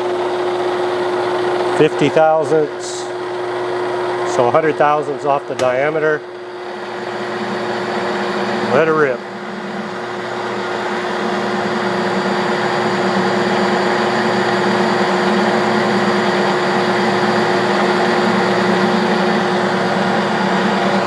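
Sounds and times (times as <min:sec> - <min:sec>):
lathe running: 0:00.0 - 0:21.0.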